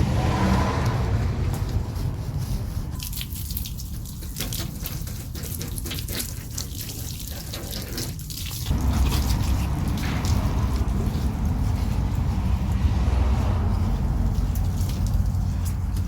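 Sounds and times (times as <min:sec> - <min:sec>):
low rumble: 0:00.0 - 0:03.0, 0:08.7 - 0:16.0
water spraying on a car: 0:00.0 - 0:16.0.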